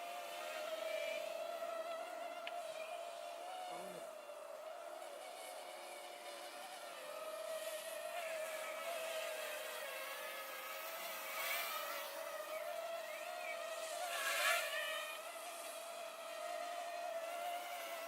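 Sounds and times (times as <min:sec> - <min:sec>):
drone propellers buzzing: 0:00.0 - 0:18.0.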